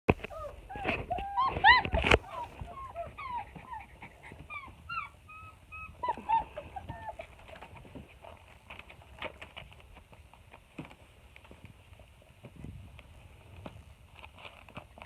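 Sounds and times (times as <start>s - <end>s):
puppies whimpering and squeaking: 0.2s - 7.8s.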